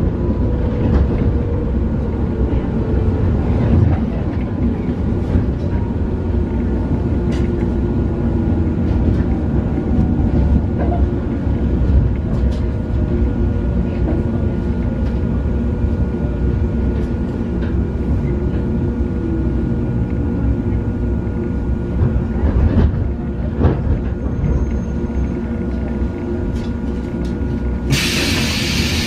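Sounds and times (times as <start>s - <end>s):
train running gear rumble: 0.0s - 29.0s
loud hiss of air: 27.9s - 29.0s.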